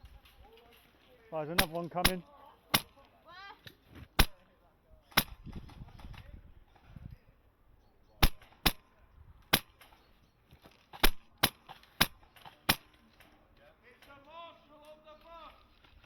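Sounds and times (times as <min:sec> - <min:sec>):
airsoft gun shots: 0:01.6 - 0:03.0, 0:04.2 - 0:04.4, 0:05.1 - 0:05.7, 0:08.2 - 0:09.8, 0:11.0 - 0:12.9.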